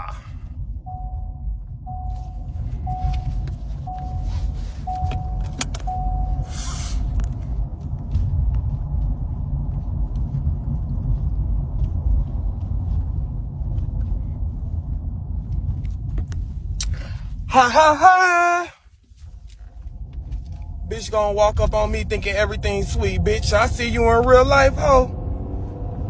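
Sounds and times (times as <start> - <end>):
car interior rumble: 0.0 - 26.0
electronic warning chime: 0.9 - 7.1.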